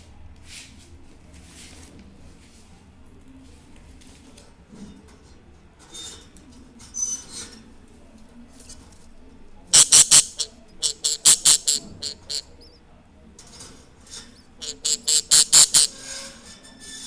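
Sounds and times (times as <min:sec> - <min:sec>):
budgerigars chirping: 0:09.8 - 0:12.8, 0:14.6 - 0:16.0.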